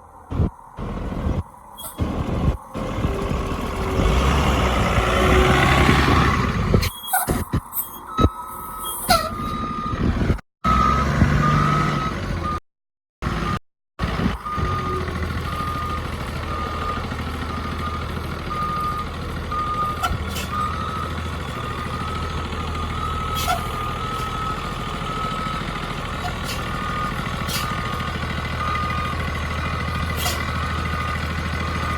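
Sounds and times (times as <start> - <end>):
bus engine humming: 0.0 - 12.6, 13.2 - 31.9
reversing alarm beeping: 5.6 - 12.6, 14.3 - 31.9.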